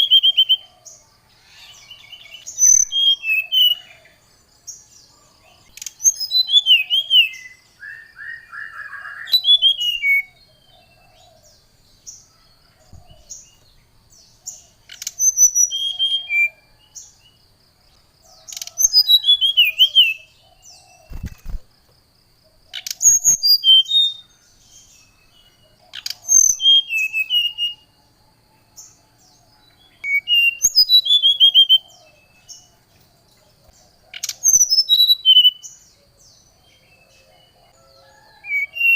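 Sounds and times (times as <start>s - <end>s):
bird singing high whistles: 1.8s - 3.9s, 6.1s - 10.4s, 26.3s - 27.8s, 30.0s - 31.8s, 34.5s - 35.6s.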